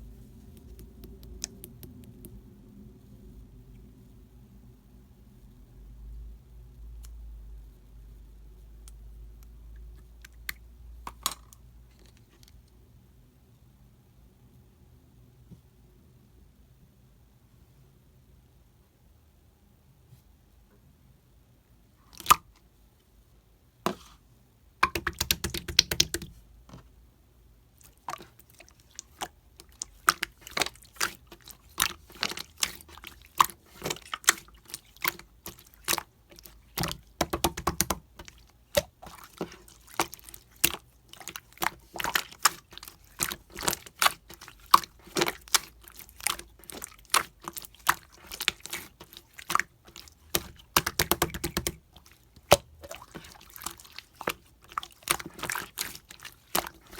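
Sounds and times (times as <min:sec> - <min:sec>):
slime squishing by hand: 0:00.0 - 0:02.4, 0:22.1 - 0:22.5, 0:24.8 - 0:26.9, 0:27.8 - 0:56.9.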